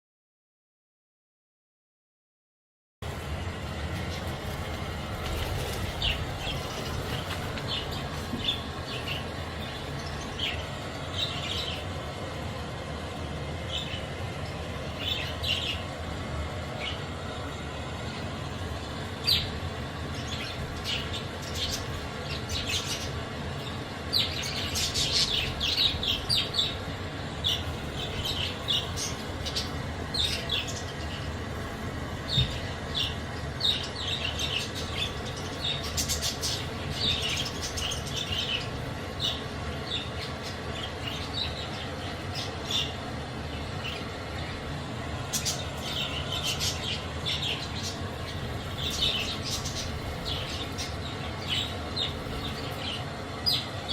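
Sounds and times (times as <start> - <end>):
budgerigars chirping: 19.2 - 31.3, 32.2 - 43.0, 45.2 - 53.7.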